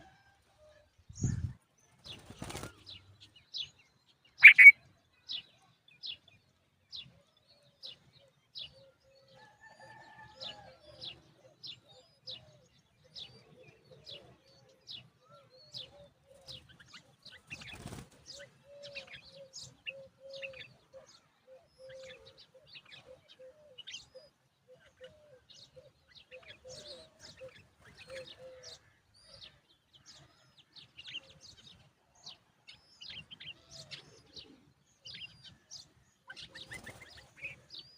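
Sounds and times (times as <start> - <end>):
birds chirping: 1.0 - 5.5, 25.4 - 37.9.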